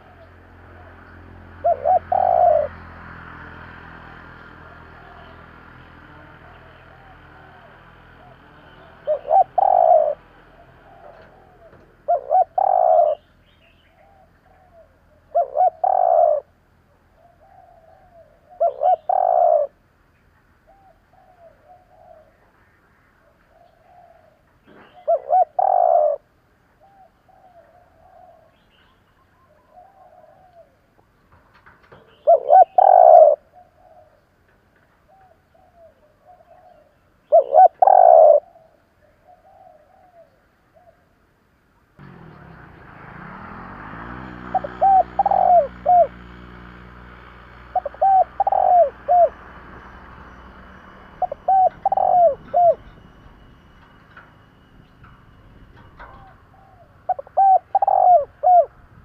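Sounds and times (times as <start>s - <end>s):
dove cooing: 0.0s - 19.8s, 20.7s - 22.5s, 23.2s - 28.7s, 29.4s - 30.9s, 31.9s - 34.2s, 35.0s - 41.2s, 42.0s - 59.0s.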